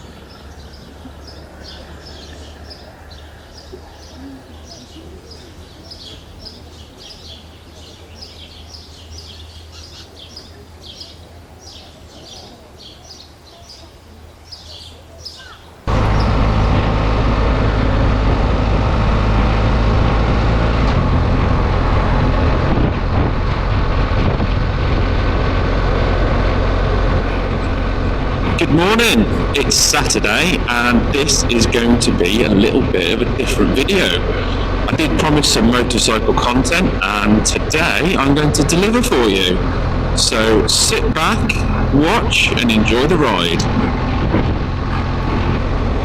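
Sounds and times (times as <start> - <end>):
small birds chirping: 0.0 - 16.8, 27.2 - 45.8
motorcycle engine: 15.9 - 46.0
wind noise: 15.9 - 46.0.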